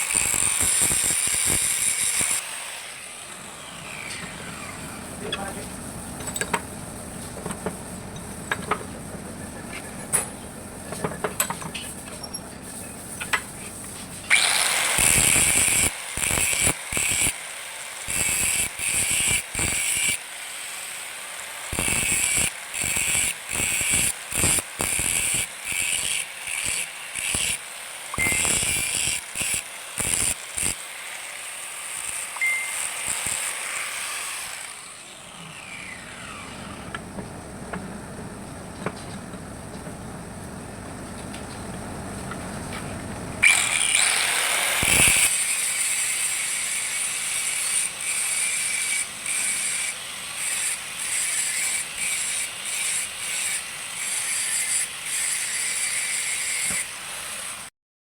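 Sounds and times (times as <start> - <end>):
harsh hissing bursts: 42.0 - 45.4.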